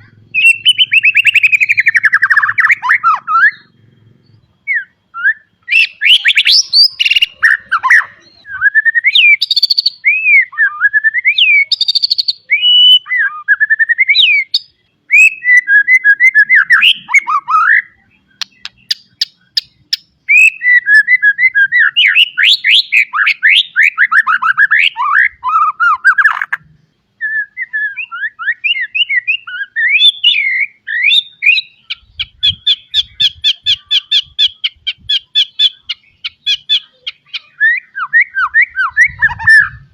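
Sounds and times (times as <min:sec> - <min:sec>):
bird singing whistled song: 0:00.0 - 0:39.9
bird sharp clicking notes: 0:18.4 - 0:20.1.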